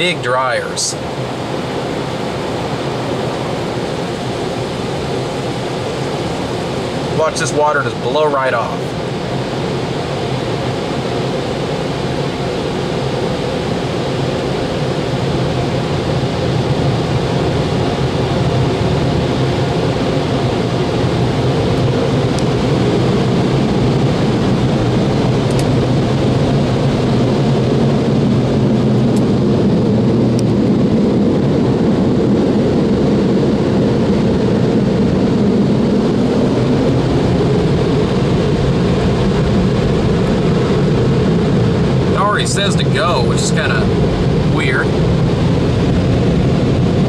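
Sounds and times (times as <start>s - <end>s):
blower dryers rushing air: 0.0s - 47.0s.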